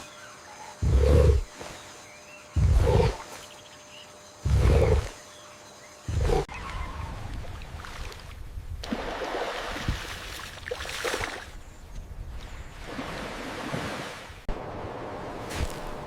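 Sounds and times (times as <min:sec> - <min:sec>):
water splashing and running: 0:07.4 - 0:11.6.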